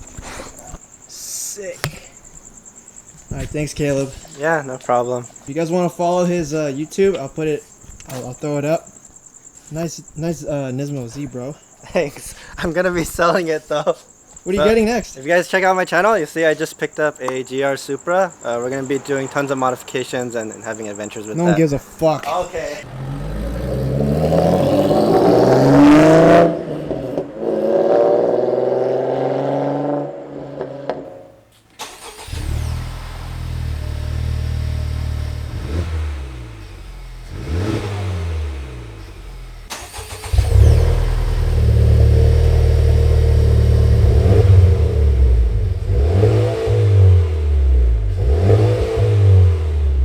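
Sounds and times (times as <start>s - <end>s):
car engine revving: 22.6s - 31.1s, 31.8s - 50.0s
low exhaust note: 32.5s - 39.7s, 40.3s - 50.0s.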